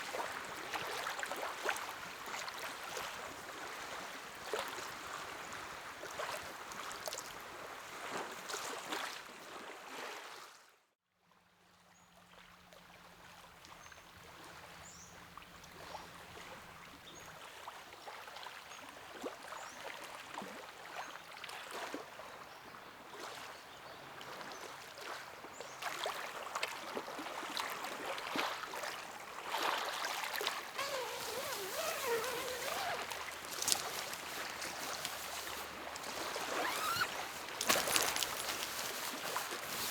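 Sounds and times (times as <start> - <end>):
lake waves lapping on shore: 24.2 - 39.9.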